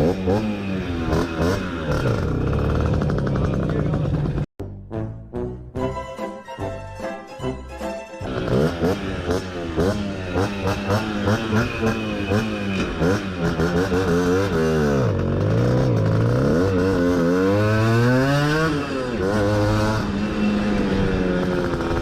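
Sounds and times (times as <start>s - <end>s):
moped engine revving: 0.0s - 4.5s, 8.2s - 22.0s.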